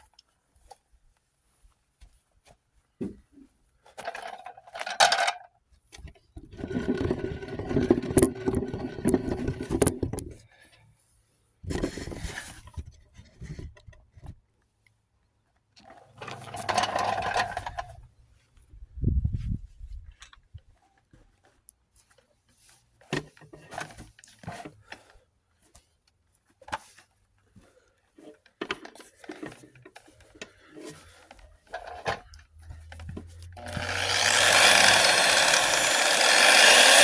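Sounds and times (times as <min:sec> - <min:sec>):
power tool stripping paint: 0:33.6 - 0:37.0.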